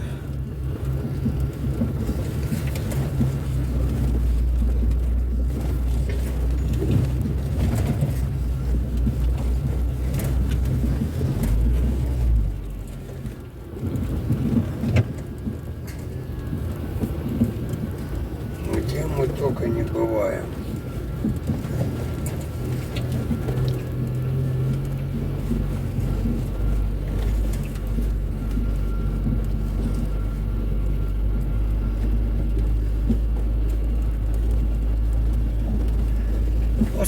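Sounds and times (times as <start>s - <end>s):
car engine and road noise: 0.0s - 37.0s.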